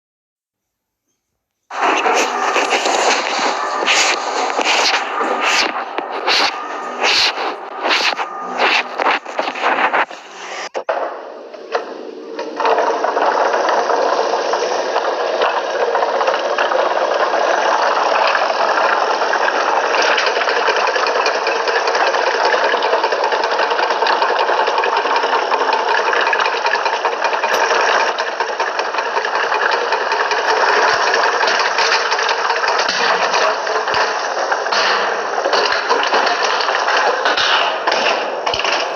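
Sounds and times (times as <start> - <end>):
small engine rattling: 12.4 - 38.9.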